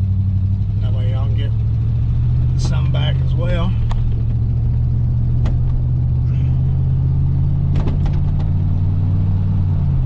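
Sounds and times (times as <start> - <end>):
pickup engine and road drone: 0.0 - 10.0.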